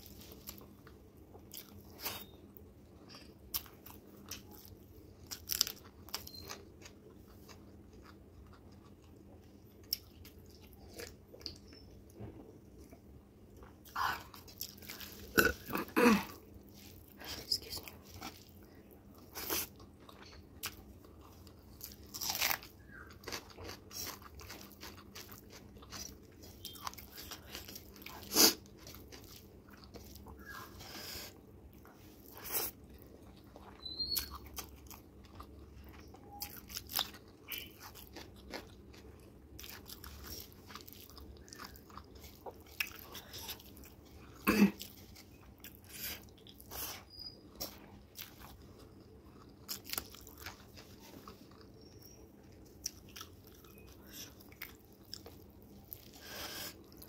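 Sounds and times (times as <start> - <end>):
crunchy bites: 21.9 - 29.3
wet chewing and lip smacks: 44.8 - 57.0.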